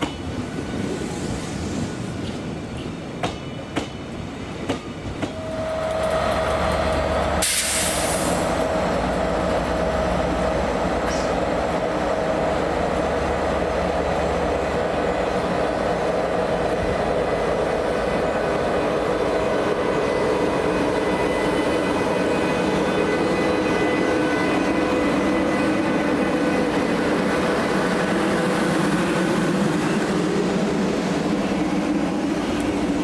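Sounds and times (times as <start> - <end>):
train rumble and wheel noise: 0.0 - 33.0
burst of hiss: 7.4 - 8.6.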